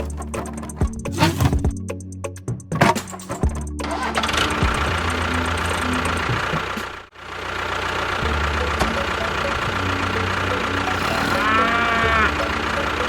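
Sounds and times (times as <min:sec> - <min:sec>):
motor running: 0:03.8 - 0:13.0
rising and falling call: 0:10.7 - 0:13.0.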